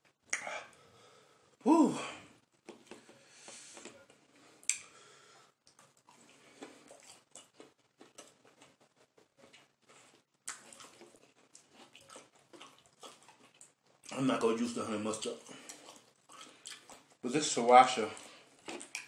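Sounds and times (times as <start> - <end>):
person chewing and lip-smacking: 0.3 - 0.6, 4.6 - 4.9, 5.6 - 14.1, 15.4 - 17.2, 18.2 - 19.0.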